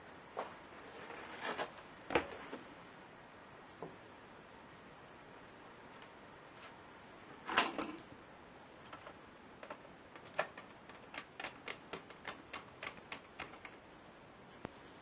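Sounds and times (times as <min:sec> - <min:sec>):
laptop clatter: 0:08.8 - 0:13.8
laptop clicks: 0:08.9 - 0:13.8.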